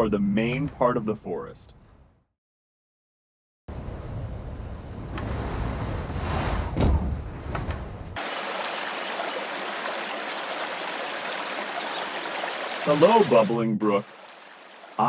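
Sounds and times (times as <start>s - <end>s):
brook water rushing: 8.2s - 15.0s.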